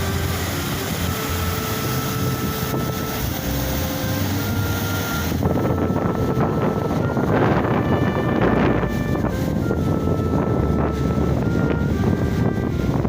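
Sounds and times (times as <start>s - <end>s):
steady rushing noise: 0.0s - 13.0s
wind buffeting microphone: 0.0s - 13.0s.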